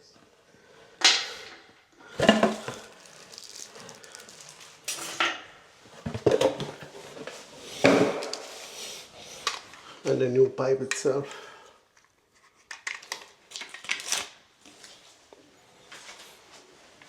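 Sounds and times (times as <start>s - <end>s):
metal plumbing parts clattering: 2.2s - 5.4s.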